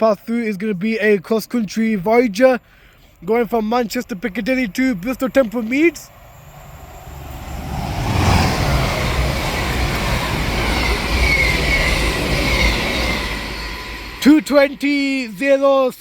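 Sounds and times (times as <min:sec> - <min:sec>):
diesel train passing: 0:02.7 - 0:16.0
faint high whine: 0:03.2 - 0:15.6.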